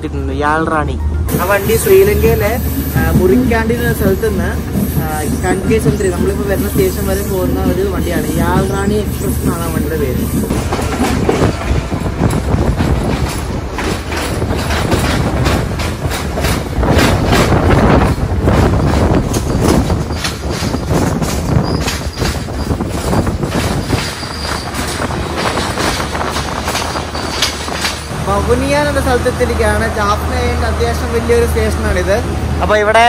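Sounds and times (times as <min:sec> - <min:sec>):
train running rushing noise: 0:00.0 - 0:33.0
wheels clattering over rail joints: 0:01.7 - 0:32.3
faint high wheel squeal: 0:21.5 - 0:22.8, 0:24.0 - 0:25.0.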